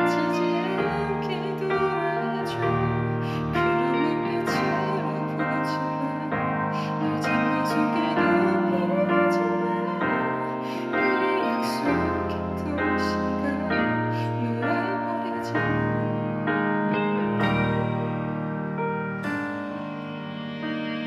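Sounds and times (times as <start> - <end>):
live band playing instrumental: 17.0 - 21.0.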